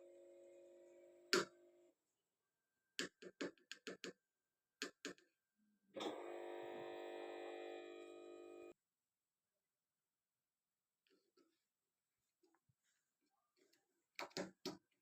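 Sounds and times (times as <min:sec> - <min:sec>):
washing machine humming: 0:06.0 - 0:08.7.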